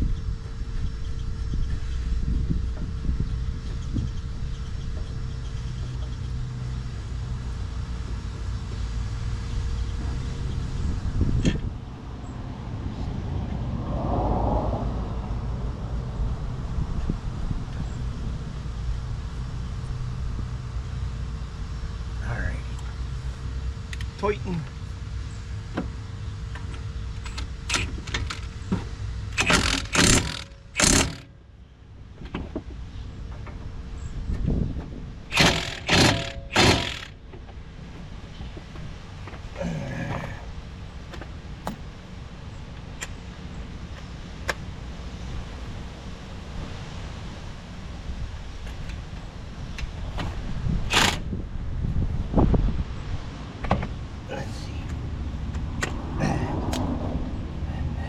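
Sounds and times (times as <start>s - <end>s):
steady low rumble: 0.0s - 45.9s
tools clicking and knocking: 26.6s - 28.6s, 29.4s - 31.2s, 35.3s - 37.1s
impact wrench bursts: 27.2s - 28.6s, 29.3s - 31.3s, 35.3s - 37.2s, 50.9s - 51.3s.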